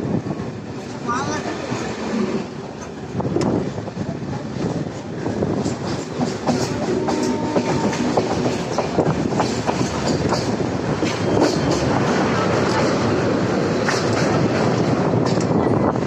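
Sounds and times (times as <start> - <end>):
train wheels clattering: 5.3 - 16.0.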